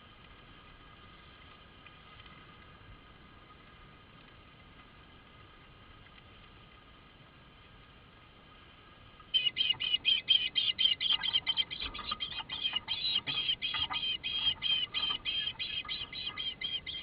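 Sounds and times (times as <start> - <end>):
faint steady hum: 0.0 - 17.0
bird chirping rapidly: 9.4 - 17.0.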